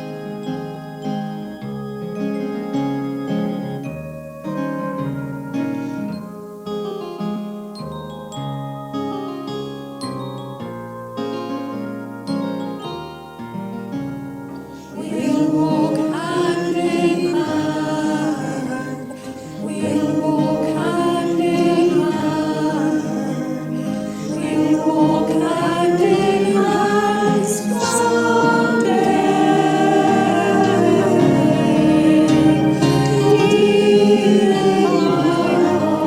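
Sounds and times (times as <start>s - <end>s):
choir singing a hymn: 0.0s - 6.2s, 14.5s - 36.0s
keyboard playing: 0.0s - 36.0s.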